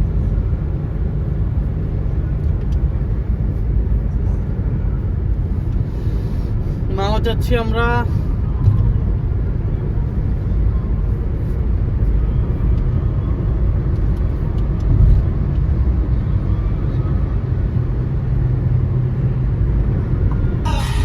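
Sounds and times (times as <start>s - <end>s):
car engine and road noise: 0.0s - 21.0s
low hum: 15.8s - 21.0s.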